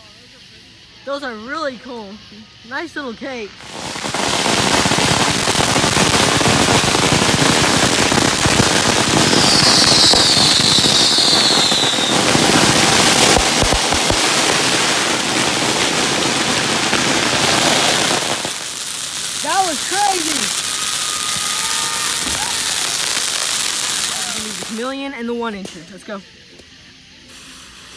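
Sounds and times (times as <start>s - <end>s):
firework crackling and popping: 3.5s - 27.9s
firework whistle: 3.6s - 25.0s.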